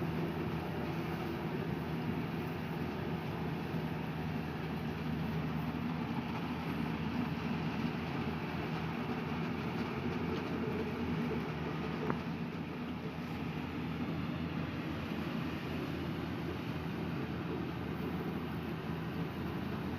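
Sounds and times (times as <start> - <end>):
machinery engine running: 0.0 - 19.9.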